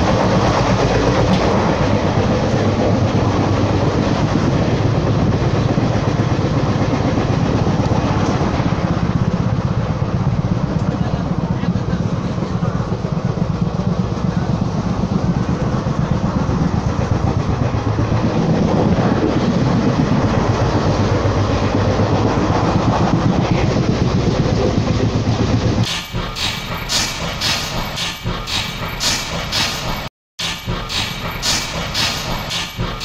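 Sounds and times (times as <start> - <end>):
train rumble and rattle: 0.0 - 33.0
rhythmic hissing beats: 25.9 - 33.0.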